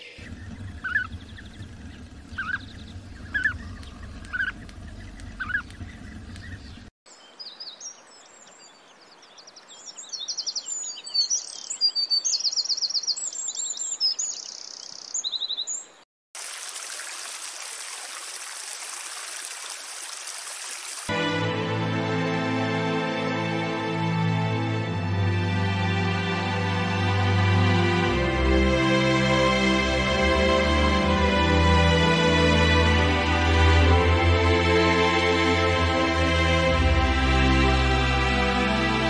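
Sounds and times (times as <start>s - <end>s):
short bird calls: 0.0s - 6.9s
birds chirping and trilling: 0.0s - 16.0s
low rumble: 0.2s - 6.9s.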